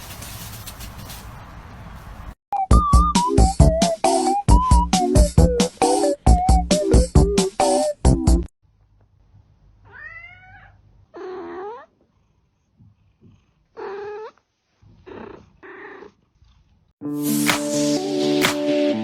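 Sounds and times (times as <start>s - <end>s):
cat meowing: 9.8s - 11.9s.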